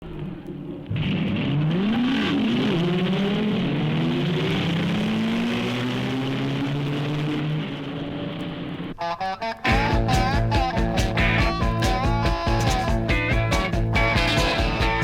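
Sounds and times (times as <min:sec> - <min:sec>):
car engine accelerating: 0:00.8 - 0:09.0.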